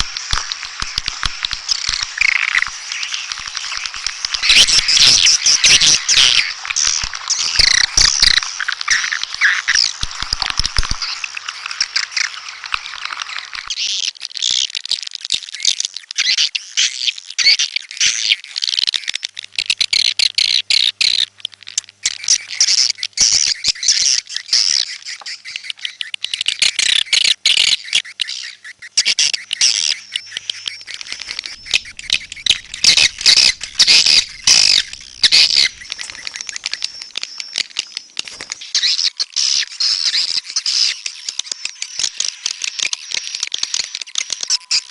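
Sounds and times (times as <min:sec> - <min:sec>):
swiftlets twittering: 0:00.0 - 0:13.8, 0:29.0 - 0:44.9.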